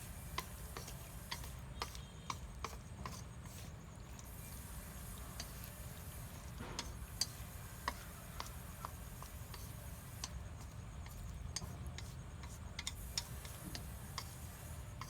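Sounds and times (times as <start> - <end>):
light clicks and taps: 6.5 - 14.4.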